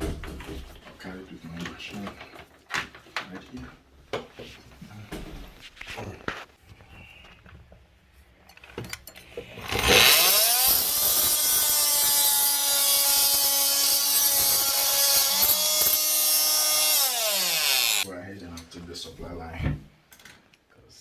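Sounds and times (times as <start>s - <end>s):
electric cutting tool cutting metal: 9.6s - 18.1s.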